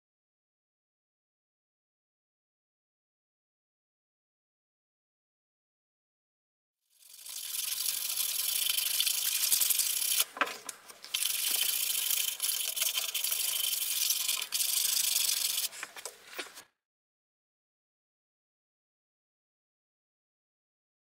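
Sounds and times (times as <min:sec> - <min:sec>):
sandpaper rubbing on metal: 0:07.1 - 0:10.3, 0:11.1 - 0:16.0.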